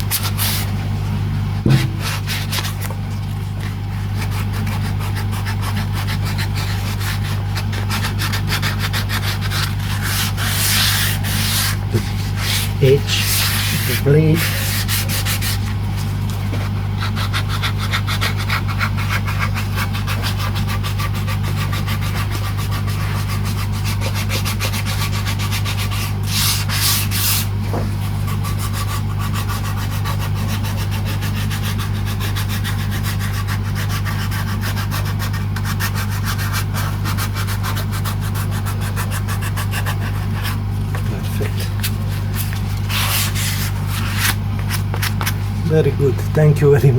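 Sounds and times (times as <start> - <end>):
electrical hum: 0.0 - 46.9.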